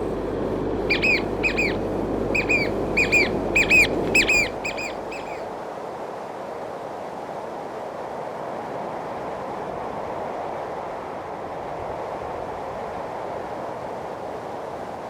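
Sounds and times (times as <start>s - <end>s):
steady rushing background: 0.0s - 5.5s
bird calling sharp notes: 0.8s - 5.5s.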